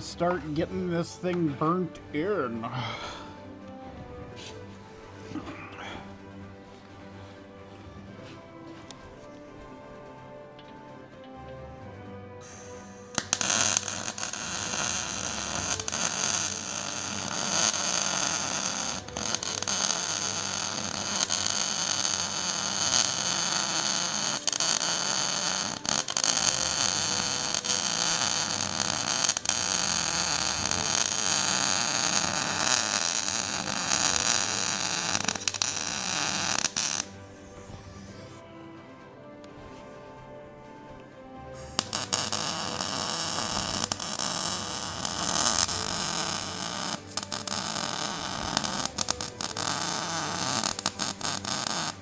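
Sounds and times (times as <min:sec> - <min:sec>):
arc welder crackling hiss: 0:12.4 - 0:38.4, 0:41.5 - 0:52.0.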